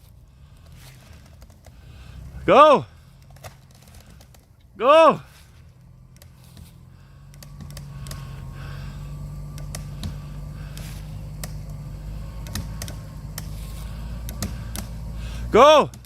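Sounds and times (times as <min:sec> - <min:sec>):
truck engine running under load: 0:00.0 - 0:16.0
sharp clicks and creaks: 0:00.5 - 0:02.3, 0:03.1 - 0:04.7, 0:05.7 - 0:08.6, 0:09.4 - 0:15.1.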